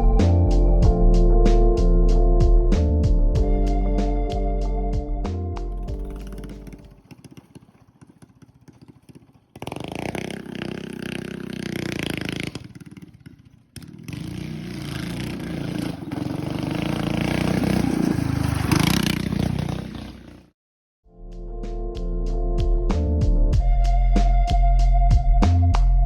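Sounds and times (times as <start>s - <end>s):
small gasoline engine running: 6.0s - 20.4s.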